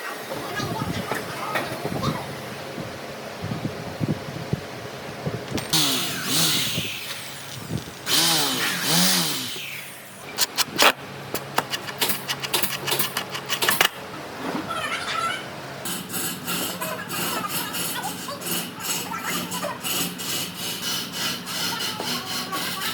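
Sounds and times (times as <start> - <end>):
small motor revving: 5.6 - 11.0.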